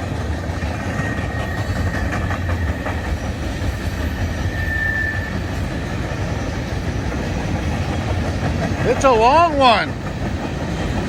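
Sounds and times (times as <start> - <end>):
freight train wheels rumbling: 0.0 - 11.0
high squeal: 0.9 - 3.0, 4.2 - 5.7.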